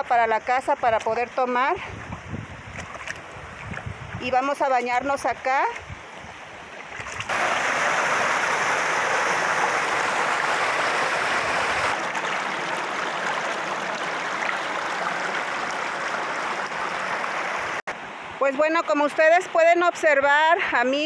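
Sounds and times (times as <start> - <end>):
stream rushing: 6.0 - 18.4.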